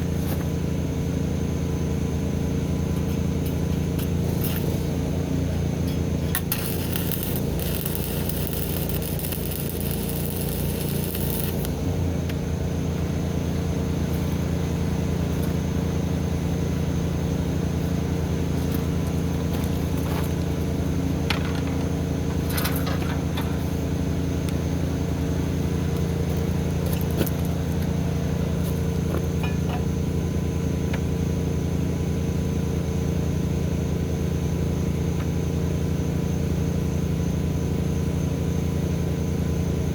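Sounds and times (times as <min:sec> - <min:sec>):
engine running steadily: 0:00.0 - 0:39.9
crackling hiss: 0:04.0 - 0:11.9.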